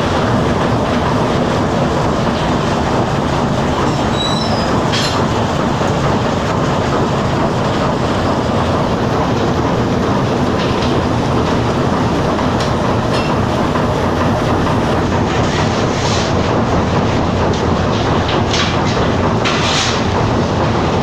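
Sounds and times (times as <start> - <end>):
steam engines running: 0.0 - 21.0
short squeaks: 4.0 - 5.2.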